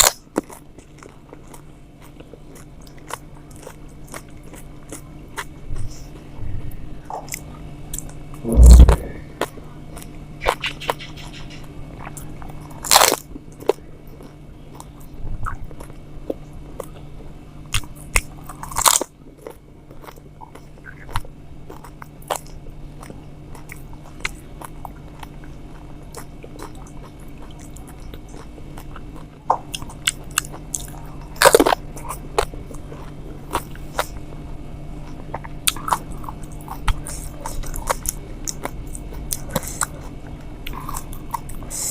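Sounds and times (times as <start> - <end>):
wet chewing with clicks: 0.0 - 6.2, 12.0 - 17.1, 17.7 - 34.2, 35.0 - 41.9
crisp puris crunching: 12.1 - 17.1, 17.7 - 34.3, 35.0 - 41.9.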